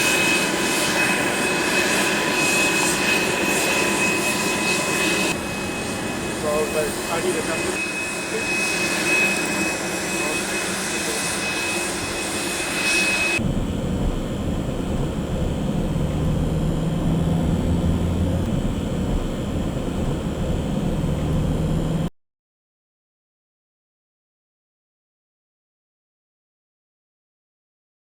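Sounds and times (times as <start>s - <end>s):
jet engines whining: 0.0s - 22.1s
low steady rumble with hum: 13.4s - 22.1s.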